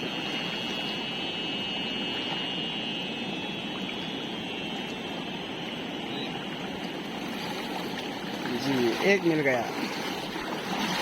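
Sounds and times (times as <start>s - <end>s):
high-pitched whine: 0.0s - 11.0s
river rushing: 7.2s - 11.0s.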